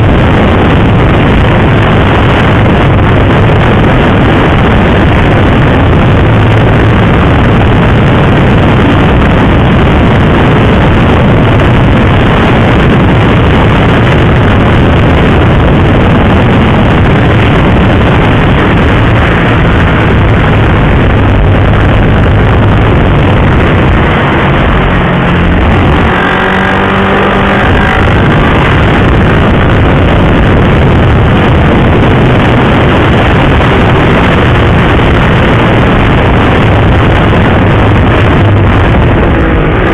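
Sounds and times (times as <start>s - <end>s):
motorcycle engine drone: 0.0s - 39.9s
wind rush on microphone: 0.0s - 39.9s.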